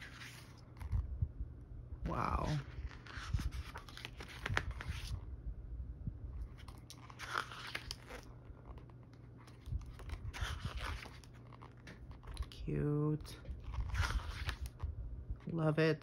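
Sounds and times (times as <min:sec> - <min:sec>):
book pages turning: 0:00.0 - 0:01.1, 0:02.2 - 0:05.2, 0:06.4 - 0:14.8.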